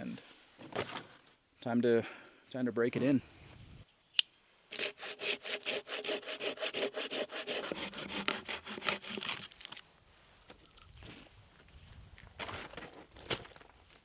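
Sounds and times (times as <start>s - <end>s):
hand saw cutting wood: 4.7s - 9.6s.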